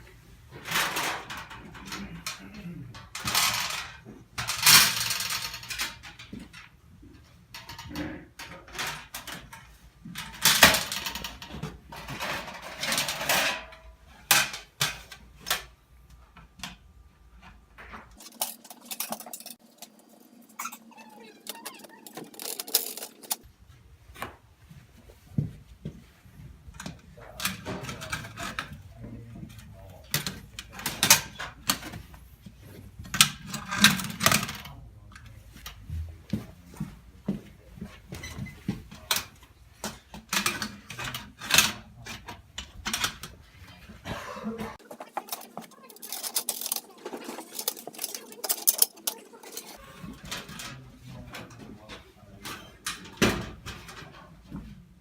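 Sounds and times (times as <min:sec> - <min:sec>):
metal parts clinking: 0:03.0 - 0:06.7, 0:18.2 - 0:19.8, 0:20.6 - 0:23.5, 0:44.8 - 0:50.8
metal sliding scrapes: 0:18.2 - 0:23.4, 0:44.8 - 0:50.8.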